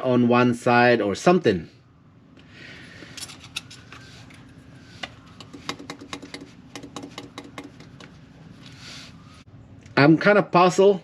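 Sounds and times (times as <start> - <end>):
metal clicks and taps on engine: 5.4 - 8.2.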